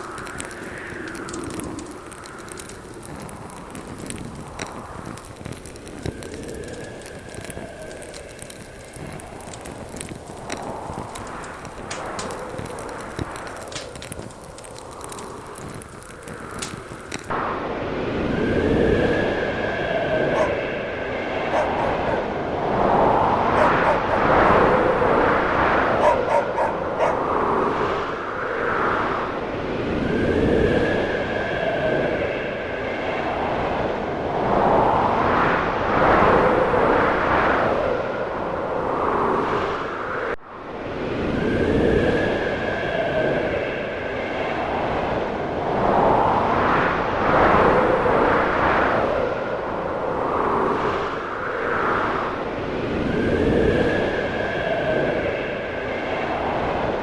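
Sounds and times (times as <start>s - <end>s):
snowstorm wind: 0.0s - 57.0s
faint whistling tone: 18.2s - 22.0s, 53.1s - 56.9s
distant dog barking: 26.0s - 27.2s.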